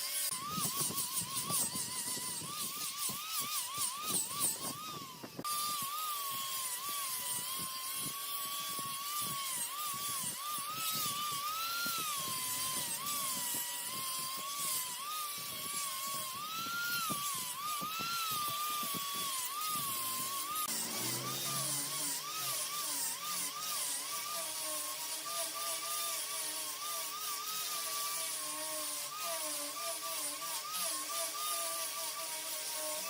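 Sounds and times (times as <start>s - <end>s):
lathe motor whine: 0.0s - 33.0s
tool scraping on wood: 0.0s - 33.0s.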